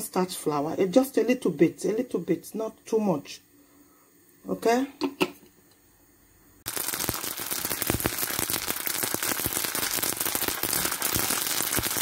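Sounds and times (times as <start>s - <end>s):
pasta deep-frying in hot oil: 6.6s - 12.0s.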